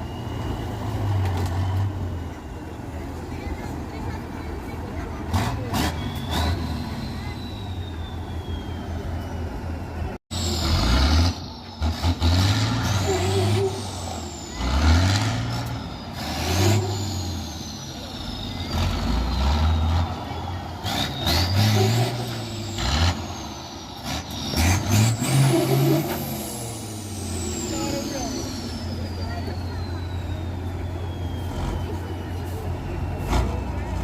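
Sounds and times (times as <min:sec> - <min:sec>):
diesel truck engine revving: 0:00.0 - 0:34.0
high whistle: 0:05.9 - 0:09.4, 0:13.0 - 0:33.9.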